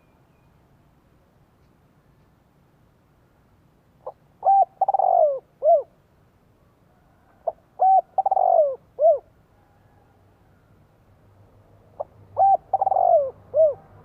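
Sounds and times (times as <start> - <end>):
dove cooing: 4.0 - 6.0, 7.4 - 9.3, 12.0 - 14.0.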